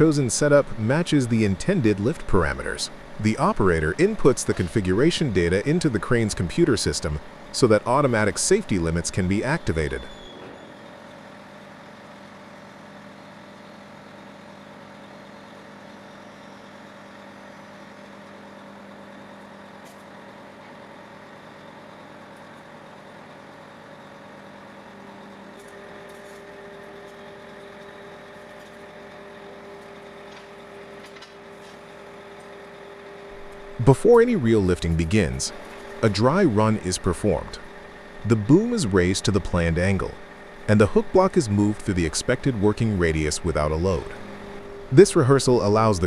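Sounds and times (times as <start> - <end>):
heavy machine engine idling: 28.2 - 46.0.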